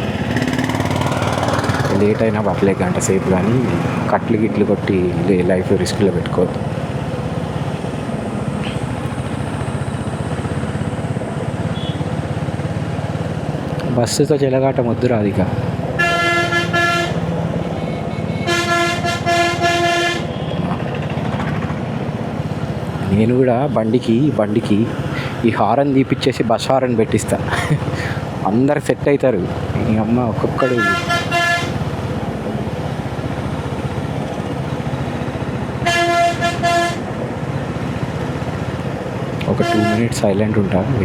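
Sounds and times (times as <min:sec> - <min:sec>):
motorcycle engine rumbling: 0:00.0 - 0:41.0
bus horn honking: 0:11.6 - 0:12.4, 0:16.0 - 0:21.6, 0:30.6 - 0:32.2, 0:35.6 - 0:37.5, 0:39.4 - 0:40.4.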